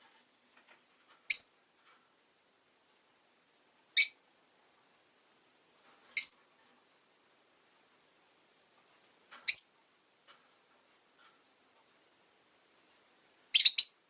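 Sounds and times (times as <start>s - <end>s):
lovebird chirps: 1.3s - 1.6s, 3.9s - 4.2s, 6.2s - 6.4s, 9.4s - 9.8s, 13.5s - 14.0s.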